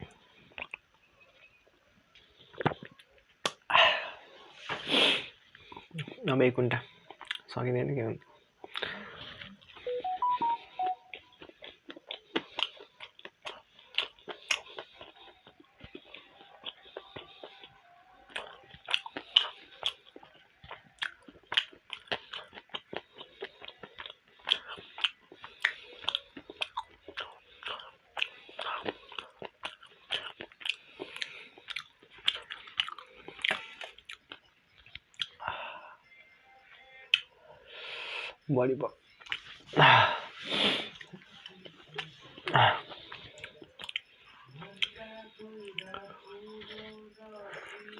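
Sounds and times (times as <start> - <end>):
person chewing close to microphone: 0.0 - 0.9, 2.1 - 3.6, 5.0 - 7.5, 8.2 - 35.5, 39.1 - 47.9
wet mouth clicks and smacks: 2.5 - 3.6
short pitched beeps: 9.9 - 11.2.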